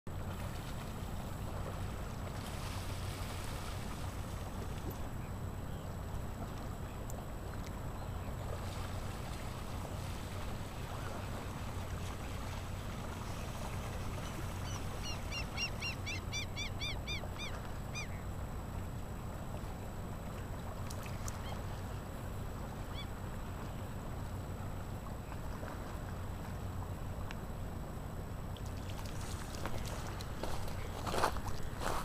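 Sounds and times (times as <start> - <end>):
bird calling: 14.1 - 18.3, 22.8 - 23.2.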